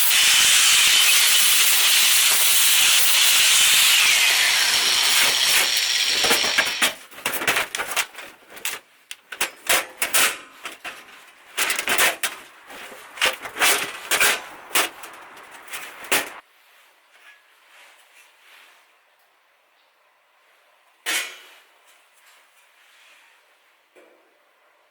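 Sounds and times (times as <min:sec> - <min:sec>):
loud hiss: 0:00.0 - 0:07.0.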